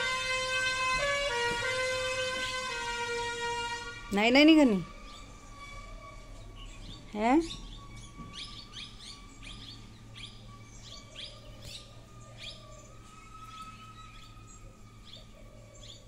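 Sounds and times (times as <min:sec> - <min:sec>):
small birds chirping: 0:04.1 - 0:16.0.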